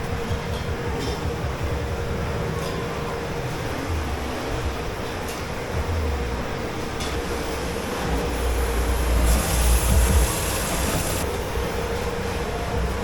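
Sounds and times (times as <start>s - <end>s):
machinery hum and rumble: 0.0s - 13.0s
hissing burst: 7.8s - 11.2s.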